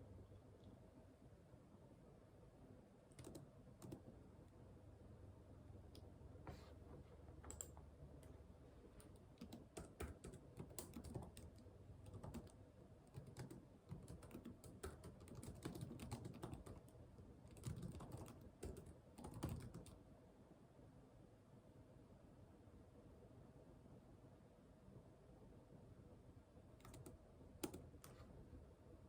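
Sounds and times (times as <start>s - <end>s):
typing on a computer keyboard: 3.1s - 4.2s, 7.4s - 8.3s, 9.0s - 20.0s, 26.8s - 28.2s.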